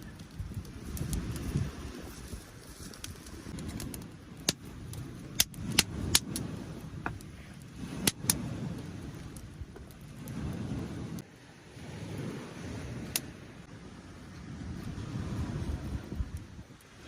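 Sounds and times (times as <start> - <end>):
sharp pops from fire: 0.0 - 11.3, 13.0 - 13.4
wood fire crackling: 0.0 - 17.0.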